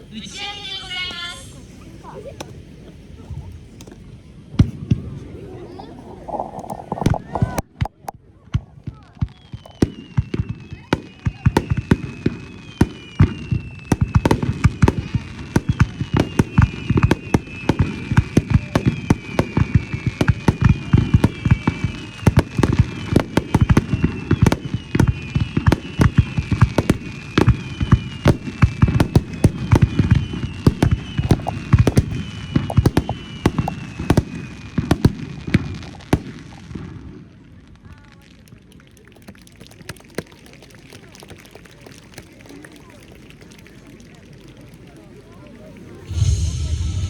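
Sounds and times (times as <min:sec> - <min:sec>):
fireworks bursts banging: 0:06.2 - 0:37.1, 0:46.0 - 0:47.0
fireworks whistling: 0:09.3 - 0:36.7, 0:46.0 - 0:47.0.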